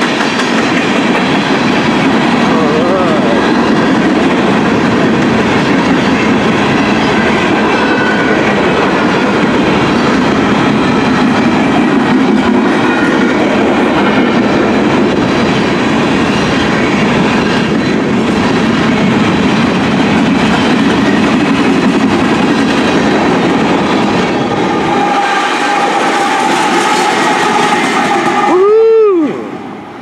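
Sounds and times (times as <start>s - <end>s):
train wheels clattering over rails: 0.0s - 29.9s
diesel locomotive high tone: 0.0s - 30.0s.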